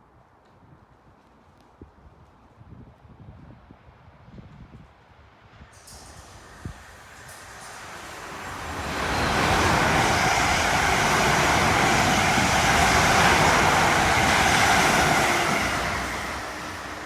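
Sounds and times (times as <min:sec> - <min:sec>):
train passing: 0:05.7 - 0:17.0.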